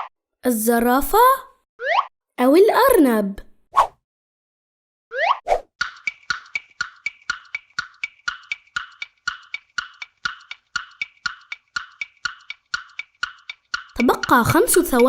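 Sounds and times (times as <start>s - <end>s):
wood-block tick-tock timer: 5.8s - 15.0s.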